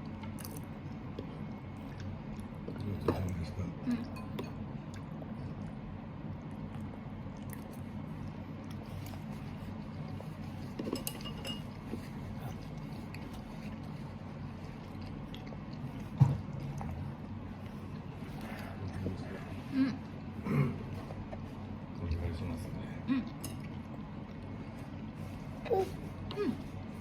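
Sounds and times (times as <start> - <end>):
low room hum: 0.0 - 27.0
tableware clinking: 10.8 - 11.8.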